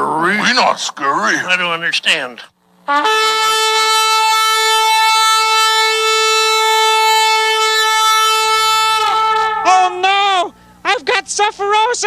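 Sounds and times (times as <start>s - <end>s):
steady horn-like note: 2.8s - 10.6s.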